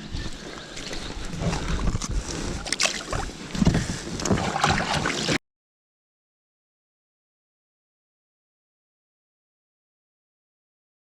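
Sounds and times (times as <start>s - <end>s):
water and wind noise: 0.0s - 5.4s.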